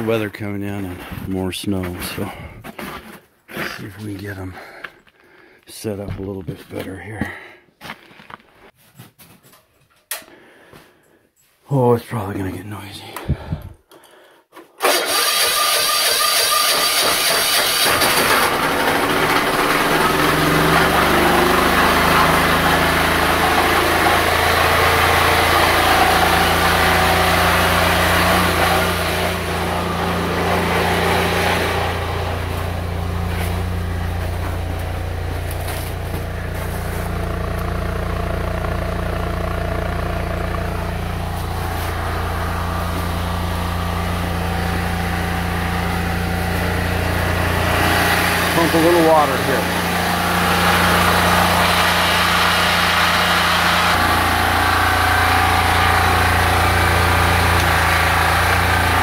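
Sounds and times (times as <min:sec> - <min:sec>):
small engine humming: 0:14.8 - 0:59.0.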